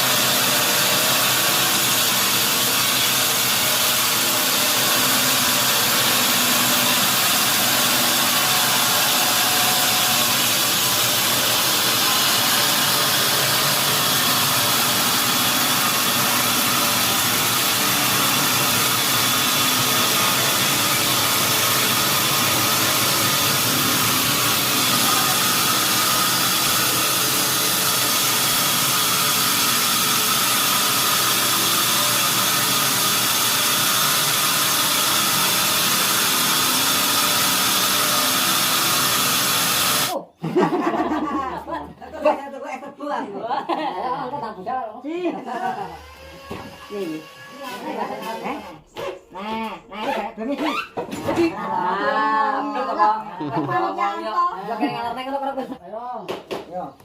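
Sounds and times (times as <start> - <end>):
sawmill saw and motor: 0.0 - 40.2, 45.5 - 48.9.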